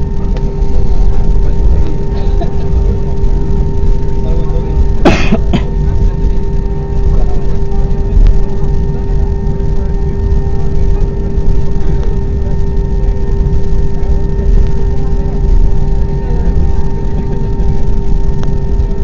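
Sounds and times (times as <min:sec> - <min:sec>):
airplane cabin rumble: 0:00.0 - 0:19.0.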